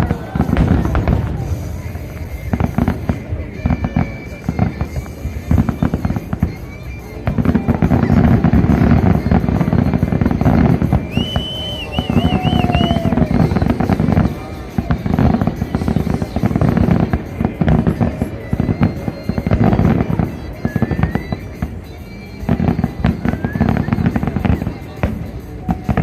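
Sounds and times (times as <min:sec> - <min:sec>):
firework shells bursting and crackling: 0:00.0 - 0:26.0
high wavering whistle: 0:03.6 - 0:14.3, 0:18.4 - 0:25.0.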